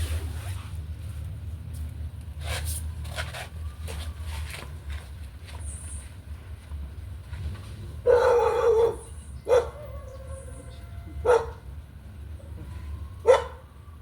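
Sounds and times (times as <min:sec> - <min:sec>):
dog barking: 0:08.0 - 0:10.2, 0:11.2 - 0:11.6, 0:13.2 - 0:13.6.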